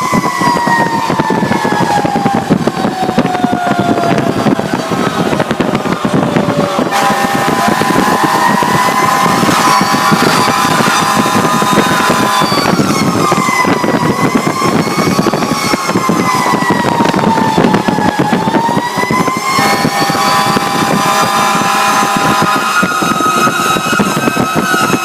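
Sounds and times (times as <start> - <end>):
fire truck siren wailing: 0.0 - 25.0
road noise: 0.0 - 25.0
truck engine running: 0.0 - 25.0.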